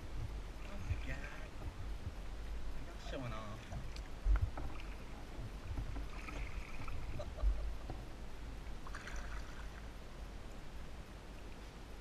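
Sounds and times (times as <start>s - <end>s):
paddle splashing water: 0.4s - 10.0s.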